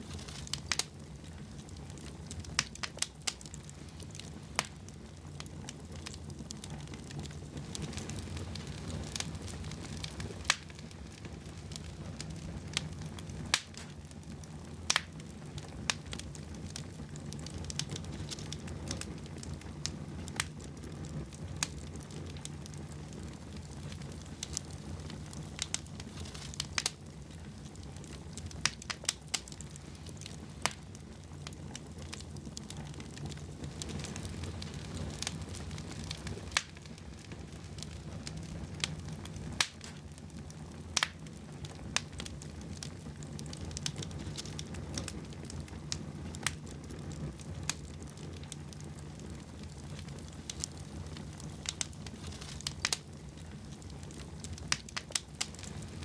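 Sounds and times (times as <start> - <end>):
fireplace fire crackling: 0.0 - 56.0.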